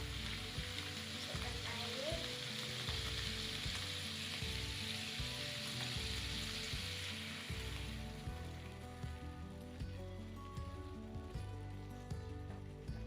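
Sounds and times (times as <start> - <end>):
water poured into a pan: 0.0 - 11.8
background music with low notes: 0.0 - 13.0
sauce sizzling in a hot pan: 0.0 - 13.0.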